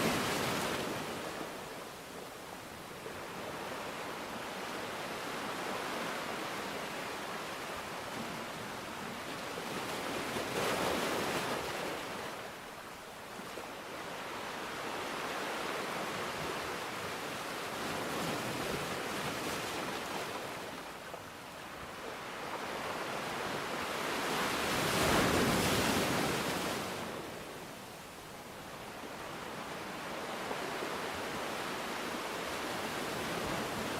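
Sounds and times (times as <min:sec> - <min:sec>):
rushing water: 0:00.0 - 0:03.1.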